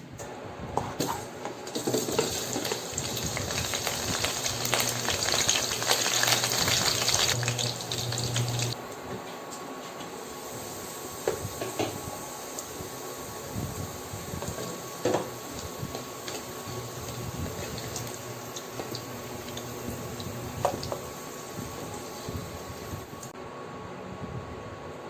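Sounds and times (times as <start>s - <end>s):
potatoes sizzling in oil: 1.7s - 8.8s, 10.4s - 23.0s.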